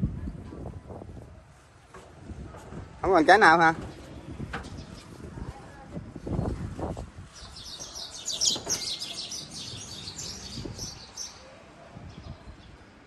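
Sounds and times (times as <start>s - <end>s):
small birds twittering: 3.9s - 5.2s, 7.3s - 13.0s.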